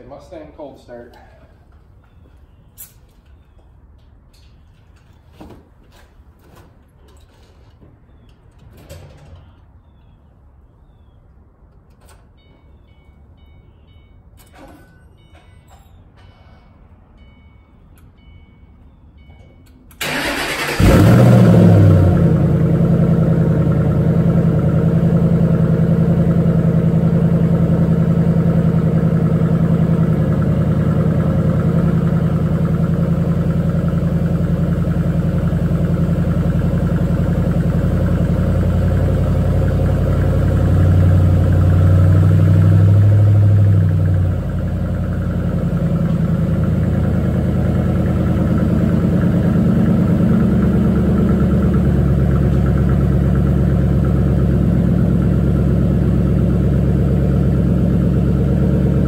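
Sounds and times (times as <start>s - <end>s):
engine cranking: 19.9s - 22.0s
car engine fast idle: 20.0s - 59.0s
deeper engine drone: 20.1s - 59.0s.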